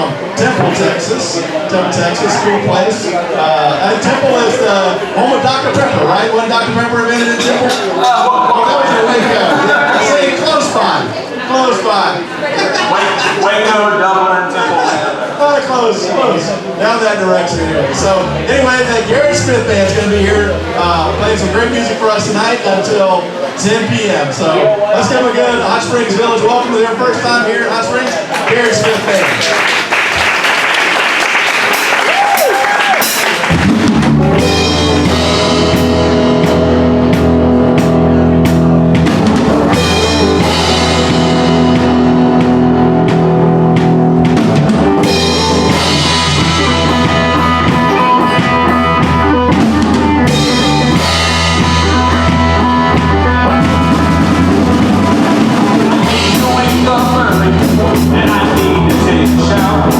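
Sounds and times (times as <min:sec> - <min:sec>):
crowd noise: 0:00.0 - 0:59.9
rock band playing: 0:16.5 - 0:23.6, 0:31.6 - 0:59.9.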